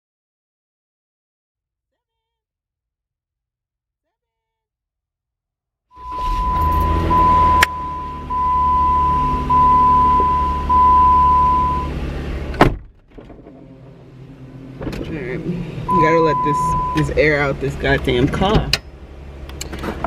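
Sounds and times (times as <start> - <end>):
car warning chime beeping: 6.0 - 12.0, 15.8 - 17.6
car door shutting: 6.0 - 16.0
low rumble inside car: 6.0 - 20.0.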